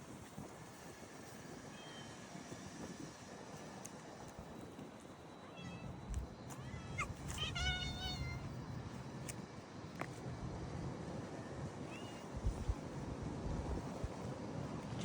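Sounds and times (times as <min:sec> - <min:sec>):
cat meowing: 0:06.6 - 0:08.4.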